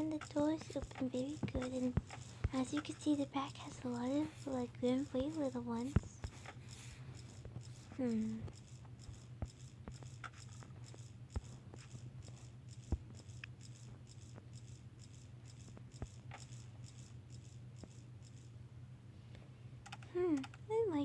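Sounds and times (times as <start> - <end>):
small objects clicking and tapping: 0.0 - 7.7
steady low hum: 0.0 - 21.0.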